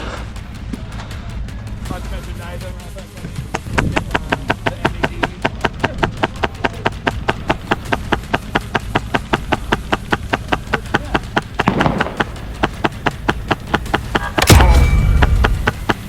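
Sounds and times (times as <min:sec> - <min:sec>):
low hum: 0:00.0 - 0:16.0
low rumble: 0:00.0 - 0:16.0
fast even thumping: 0:01.8 - 0:16.0
loud slam with ringing tail: 0:14.4 - 0:16.0.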